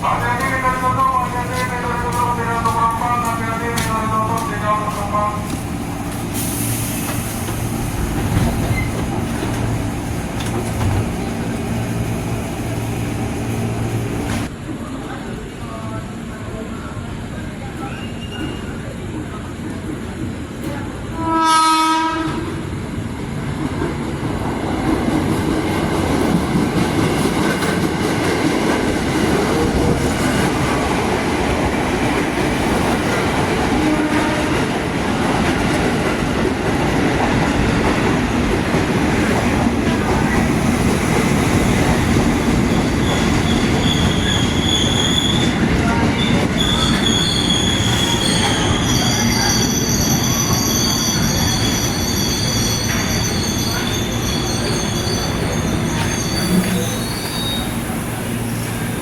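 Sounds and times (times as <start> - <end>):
train rumbling past: 0.0 - 59.0
train wheels squealing: 8.6 - 9.0, 17.8 - 18.9, 42.8 - 59.0
locomotive horn: 21.2 - 22.5, 33.7 - 34.7.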